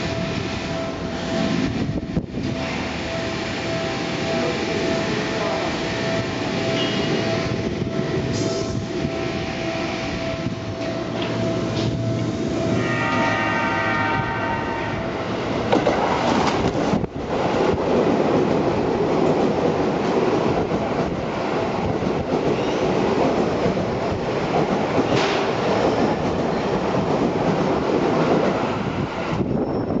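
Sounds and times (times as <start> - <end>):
train warning horn: 0.0 - 15.6
train passing: 0.0 - 30.0.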